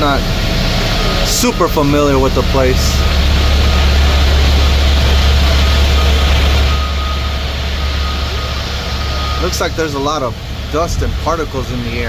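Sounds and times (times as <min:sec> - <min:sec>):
truck engine rumble from cab: 0:00.0 - 0:12.0
faint high beep: 0:01.3 - 0:09.8.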